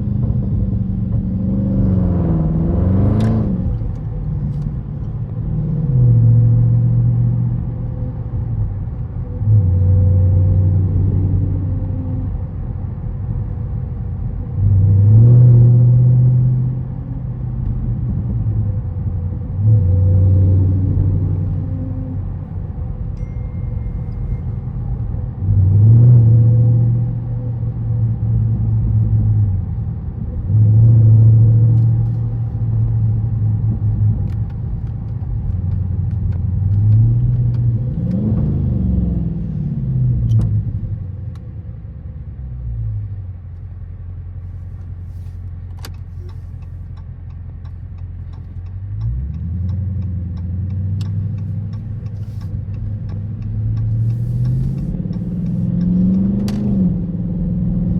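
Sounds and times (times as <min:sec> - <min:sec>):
car engine revving: 0:00.0 - 0:07.7, 0:47.6 - 0:57.9.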